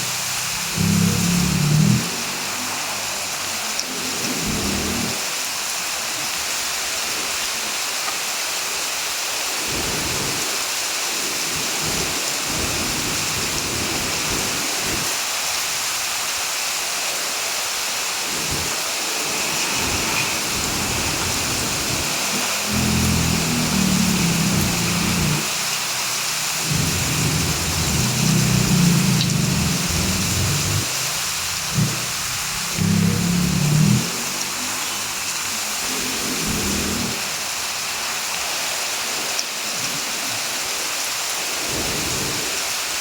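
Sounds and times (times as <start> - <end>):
heavy rain hissing: 0.0 - 43.0
low rumbles: 19.3 - 25.5, 26.6 - 30.9.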